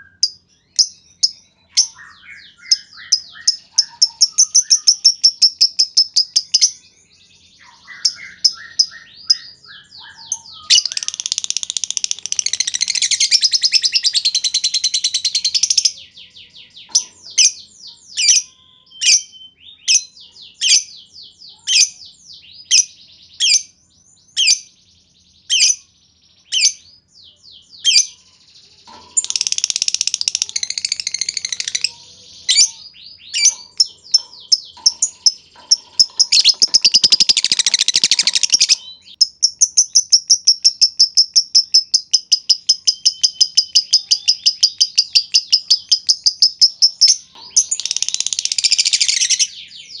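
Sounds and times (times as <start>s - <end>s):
lovebird chattering trills: 0.2s - 6.8s, 7.6s - 16.1s, 28.9s - 49.6s
lovebirds clicking chirps: 0.2s - 6.8s, 7.9s - 16.0s, 28.9s - 49.5s.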